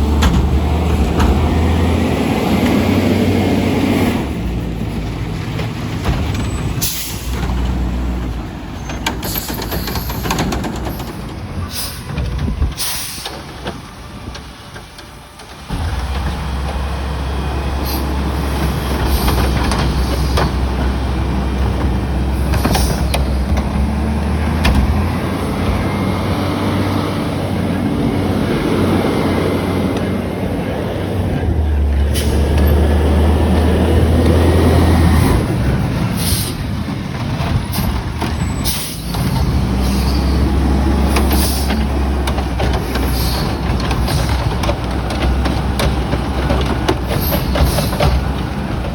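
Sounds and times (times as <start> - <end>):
garbage truck diesel engine: 0.0 - 48.9
air brakes hissing: 6.7 - 7.6, 8.8 - 13.6, 17.7 - 20.7, 22.3 - 23.5, 32.0 - 33.0, 36.1 - 36.8, 37.7 - 42.1, 42.8 - 44.4, 47.2 - 48.2.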